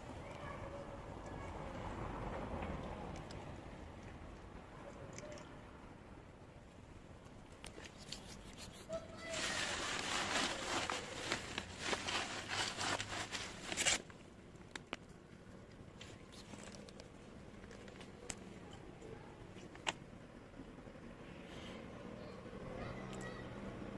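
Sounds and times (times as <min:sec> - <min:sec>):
plastic packaging crinkling: 0:09.2 - 0:14.1.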